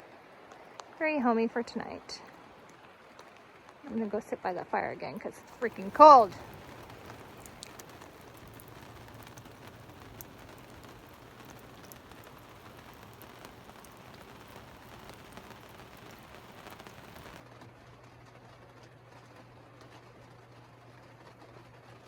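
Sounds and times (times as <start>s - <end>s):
campfire crackling: 5.3s - 17.4s.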